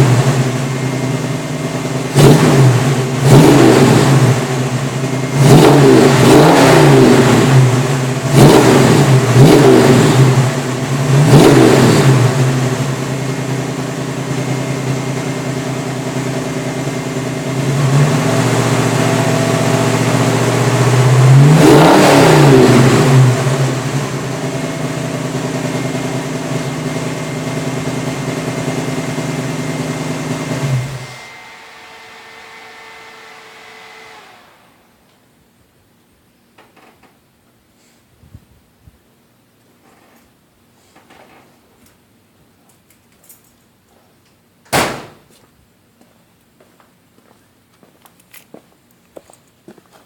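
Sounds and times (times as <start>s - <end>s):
car engine revving and idling: 0.0s - 35.0s
engine switched off: 0.0s - 35.3s.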